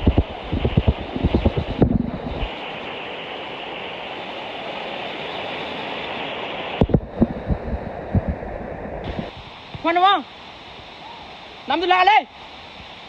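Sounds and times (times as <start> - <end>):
dull low thumps: 0.0 - 2.5, 6.8 - 9.4
waterfall and stream rushing: 0.0 - 13.0.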